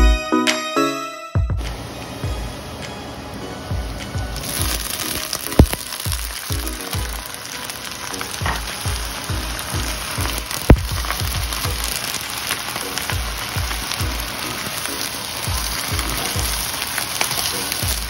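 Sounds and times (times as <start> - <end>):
music with bass beat: 1.4 - 2.5, 5.6 - 7.3, 8.4 - 12.0, 13.0 - 14.6, 15.5 - 16.8, 17.8 - 18.0
vegetables sizzling in a wok: 1.6 - 18.0.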